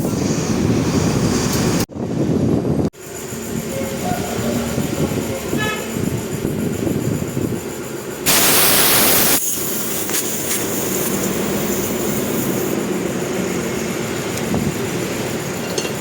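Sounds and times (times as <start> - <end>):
loud hiss: 8.2 - 13.2
vehicle running: 9.3 - 16.0.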